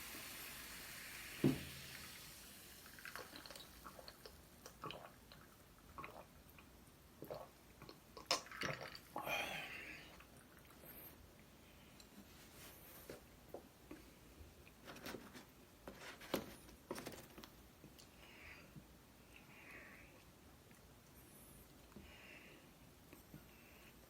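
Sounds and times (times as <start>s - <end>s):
knock: 1.4s - 1.8s.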